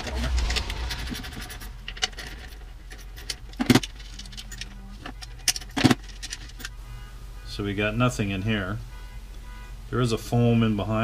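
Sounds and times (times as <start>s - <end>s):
loud metallic clanks: 0.0s - 4.6s
drum hardware clicks and clinks: 0.0s - 6.7s.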